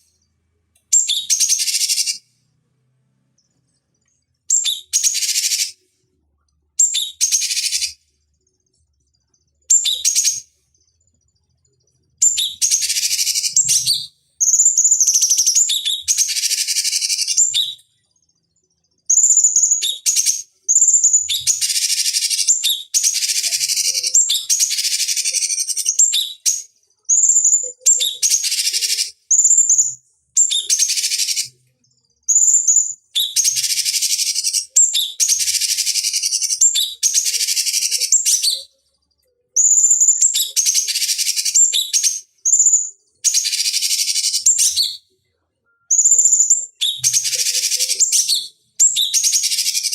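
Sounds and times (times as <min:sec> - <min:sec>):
recorded bird song: 0:00.0 - 0:49.9.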